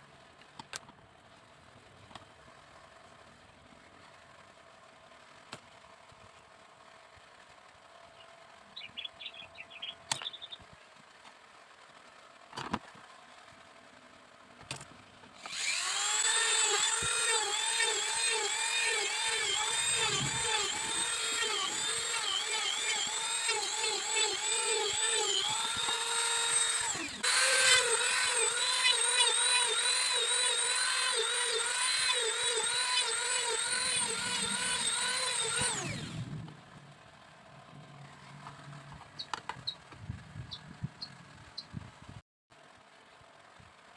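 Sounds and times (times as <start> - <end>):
power drill whining: 15.4 - 36.4.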